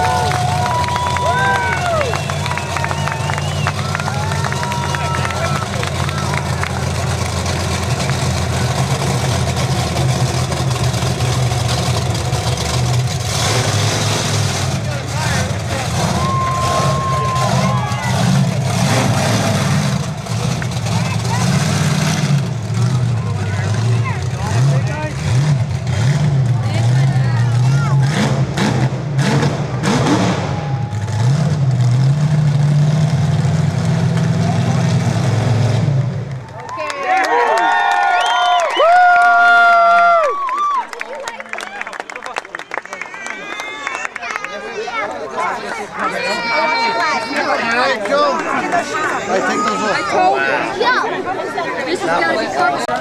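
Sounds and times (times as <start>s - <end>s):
large vehicle engine idling: 0.0s - 36.8s.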